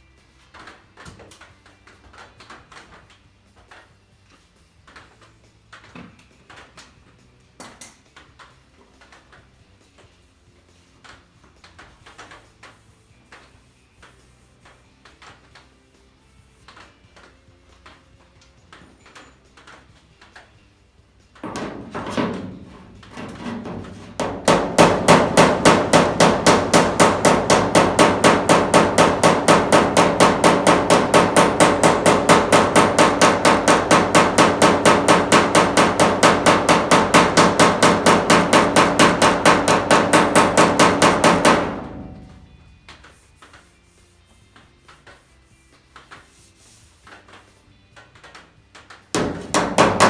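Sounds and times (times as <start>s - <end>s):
irregular knocking: 21.4s - 43.2s, 49.2s - 50.0s
hammer striking sheet metal: 21.4s - 43.7s, 49.2s - 50.0s.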